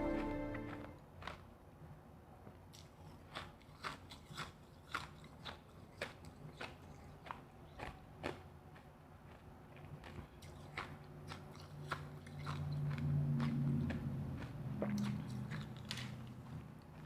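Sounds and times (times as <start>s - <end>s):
ice being chewed: 1.2s - 1.5s, 2.7s - 17.0s.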